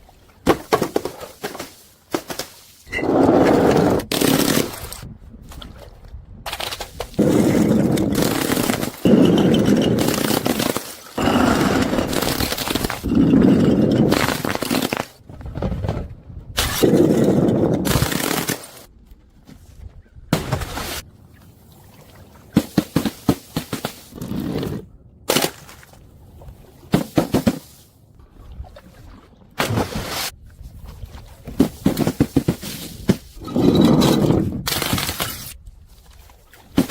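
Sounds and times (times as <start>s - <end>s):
objects crunching: 6.5s - 15.6s.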